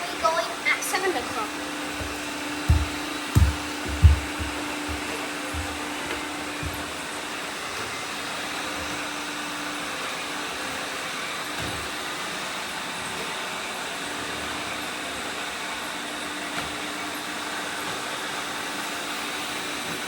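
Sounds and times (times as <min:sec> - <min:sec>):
dull low thumps: 0:02.0 - 0:06.0.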